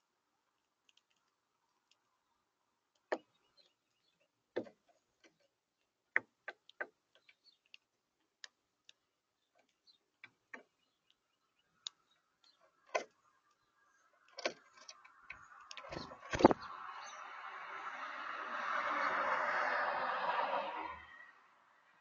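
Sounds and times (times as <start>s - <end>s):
birds pecking at seed: 0.4s - 16.7s.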